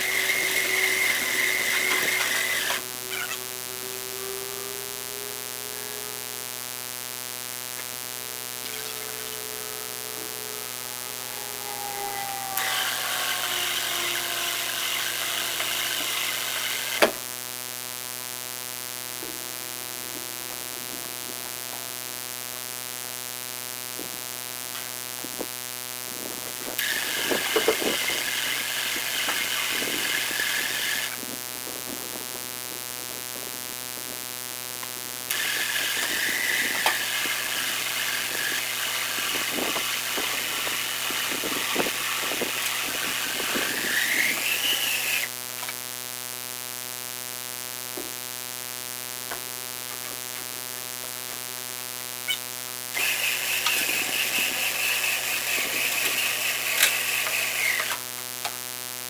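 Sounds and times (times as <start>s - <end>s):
small electric motor whirring: 0.0s - 6.6s, 8.6s - 17.2s, 26.7s - 31.2s, 35.3s - 45.4s, 52.9s - 58.1s.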